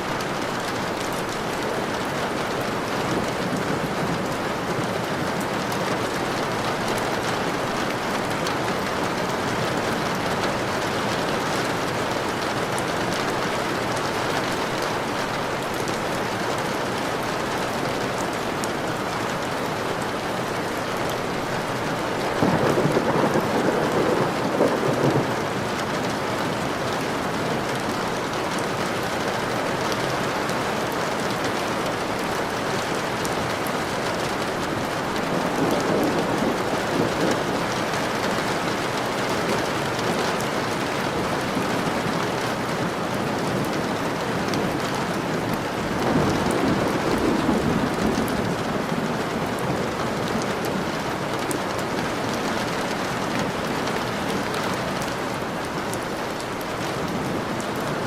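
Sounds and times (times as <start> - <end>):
heavy rain falling: 0.0 - 58.0
thunder clap rumbling: 21.7 - 25.8, 33.0 - 39.0, 45.1 - 50.7.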